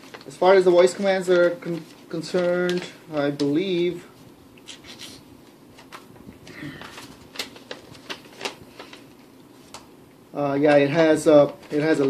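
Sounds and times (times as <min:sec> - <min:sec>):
clicks and rustles of packaging: 0:01.0 - 0:03.7, 0:06.7 - 0:09.9, 0:10.6 - 0:12.0.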